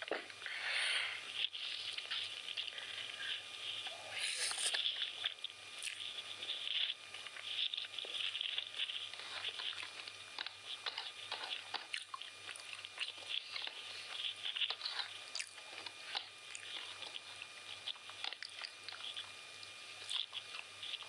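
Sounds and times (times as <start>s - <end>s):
person chewing food: 0.0s - 21.0s.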